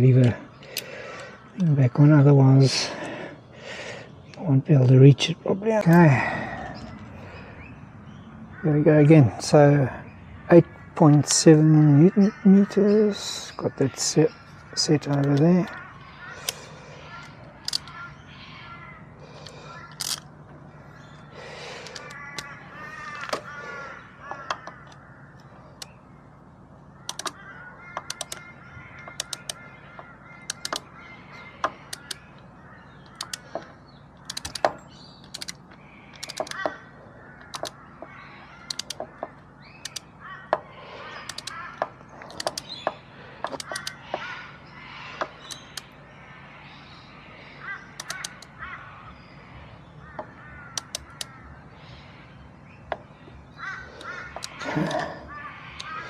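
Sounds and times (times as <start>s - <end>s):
birds calling: 0.0s - 56.0s
torque wrench clicking: 17.6s - 18.0s, 19.4s - 20.3s, 27.1s - 27.4s, 28.0s - 28.4s, 29.0s - 29.6s, 30.5s - 30.8s, 33.0s - 33.6s, 34.2s - 36.7s, 37.4s - 37.7s, 38.7s - 39.0s, 39.8s - 40.0s, 41.3s - 41.6s, 42.3s - 42.8s, 43.5s - 44.0s, 50.8s - 51.3s.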